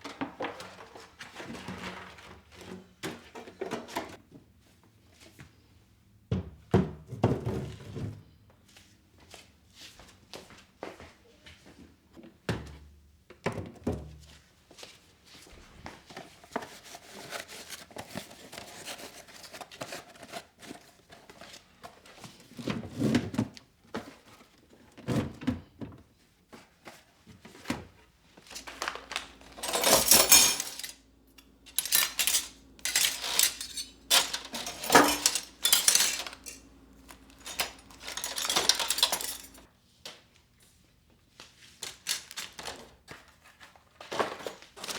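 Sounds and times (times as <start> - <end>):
dishes and utensils clinking: 28.6 - 39.6.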